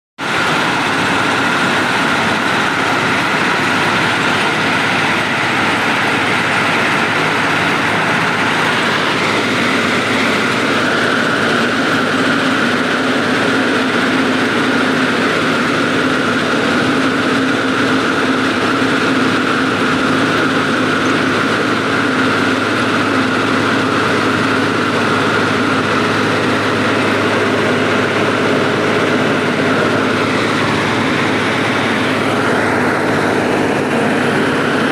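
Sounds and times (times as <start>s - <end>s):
train running: 0.2s - 34.9s.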